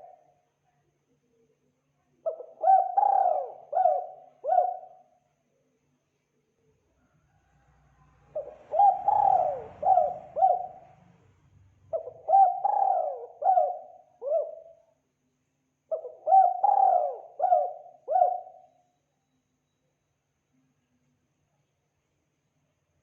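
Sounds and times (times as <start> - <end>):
dove cooing: 2.3 - 5.0, 8.3 - 11.0, 11.9 - 14.8, 15.9 - 18.7.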